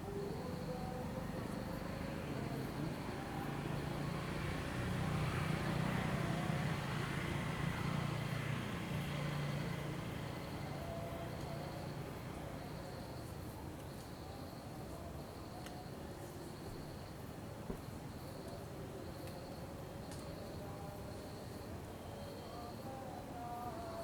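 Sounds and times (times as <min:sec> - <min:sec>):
distant vehicle passing by: 0:01.2 - 0:12.4.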